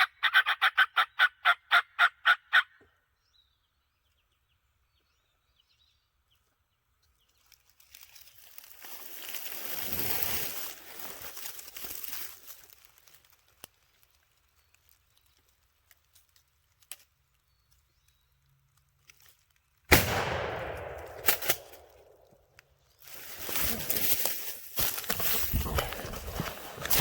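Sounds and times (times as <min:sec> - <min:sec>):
shotgun blast: 0:19.9 - 0:22.2.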